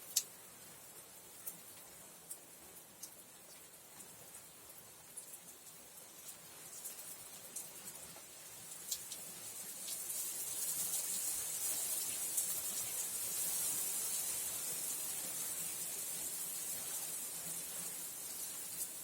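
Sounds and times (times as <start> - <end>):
raindrop ticks: 0.0 - 0.4, 1.4 - 4.5, 5.2 - 11.3
steady rain hiss: 0.0 - 19.0.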